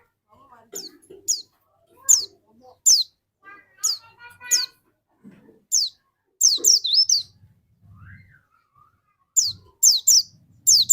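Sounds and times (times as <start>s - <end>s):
bird singing high sharp notes: 2.1s - 3.1s, 5.7s - 7.4s, 8.0s - 10.9s.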